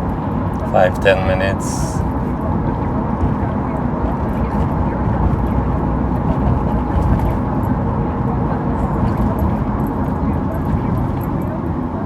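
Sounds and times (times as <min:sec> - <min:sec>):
car cabin tyre and engine rumble: 0:00.0 - 0:12.0.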